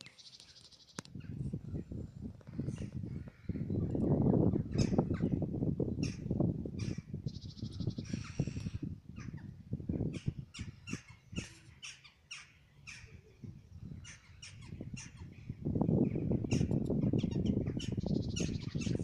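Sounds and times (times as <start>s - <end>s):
birds chirping: 0.0s - 19.0s
bird trill: 10.2s - 13.4s.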